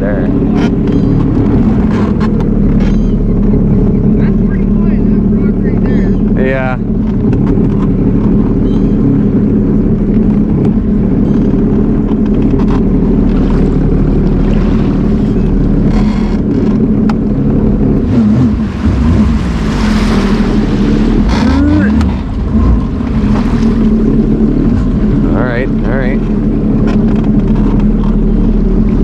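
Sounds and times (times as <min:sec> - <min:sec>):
water noise: 0:00.0 - 0:29.0
watercraft engine running: 0:00.0 - 0:29.0
wind noise: 0:05.9 - 0:29.0.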